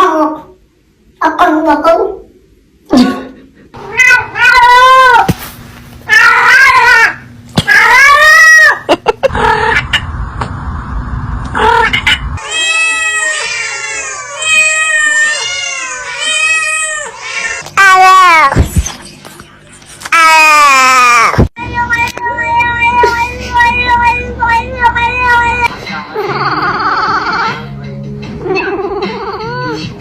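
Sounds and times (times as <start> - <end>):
cat meowing: 3.9 - 5.3, 6.1 - 8.8, 11.6 - 18.4.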